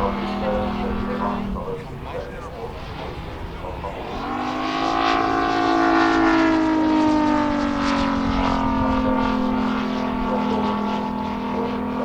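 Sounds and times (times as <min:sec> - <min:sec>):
model plane engine droning past: 0:00.0 - 0:12.0.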